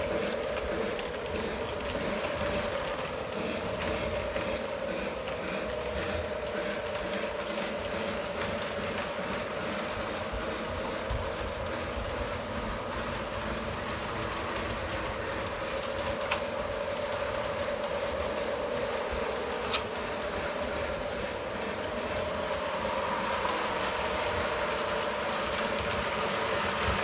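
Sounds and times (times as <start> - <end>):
electric motor hum: 0.0 - 27.0
wheels rolling over rails: 0.0 - 27.0.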